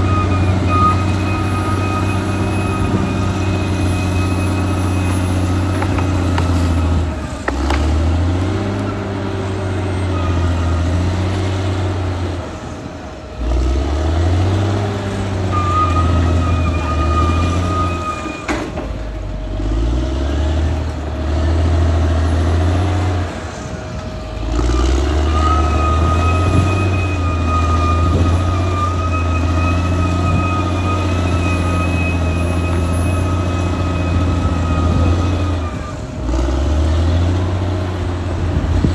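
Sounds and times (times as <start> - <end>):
high thin whine: 0.0 - 8.3, 23.4 - 37.3
bulldozer diesel engine: 0.0 - 38.9.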